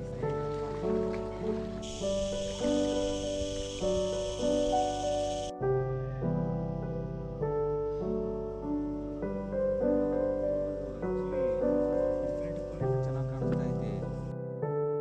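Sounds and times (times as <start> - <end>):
steady hiss: 0.0 - 14.3
slow piano melody: 0.0 - 15.0.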